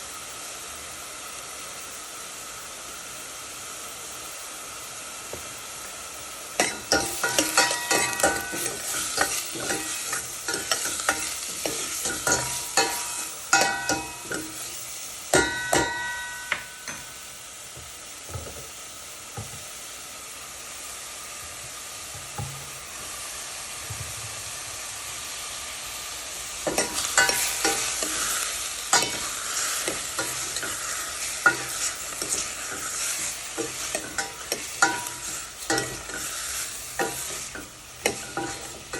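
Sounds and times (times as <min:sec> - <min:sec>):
food sizzling in a pan: 0:00.0 - 0:38.9
spatula scraping a pan: 0:06.6 - 0:16.9, 0:26.7 - 0:38.9.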